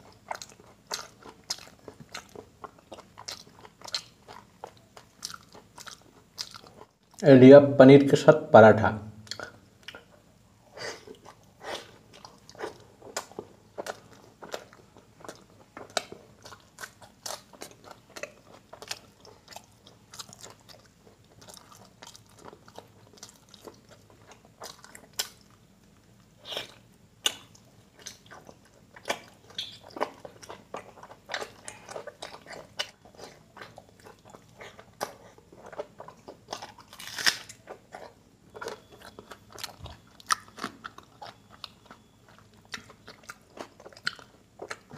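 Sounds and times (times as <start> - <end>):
chewing and wet mouth sounds: 0.0 - 7.2, 9.2 - 10.3, 10.9 - 44.9.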